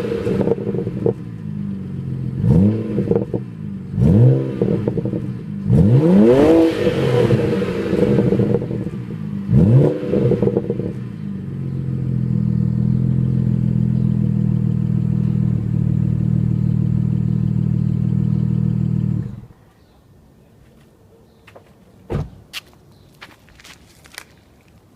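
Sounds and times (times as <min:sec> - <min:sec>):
car engine revving and idling: 0:00.0 - 0:19.5.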